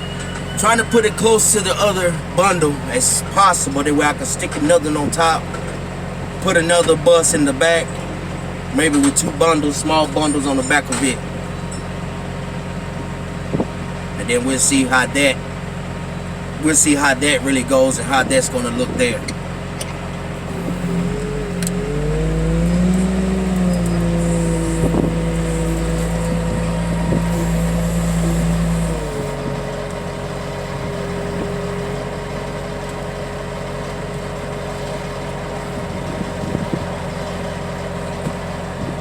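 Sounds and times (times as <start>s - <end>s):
heavy equipment engine revving: 20.3s - 36.0s.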